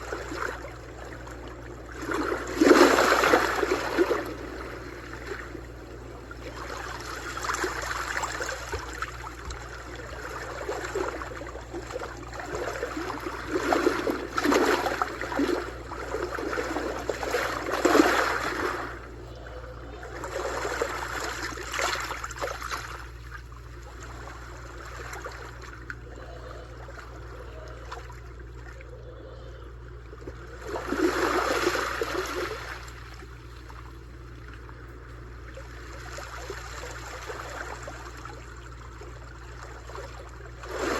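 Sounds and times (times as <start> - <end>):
sea waves washing on shore: 0.0 - 23.2.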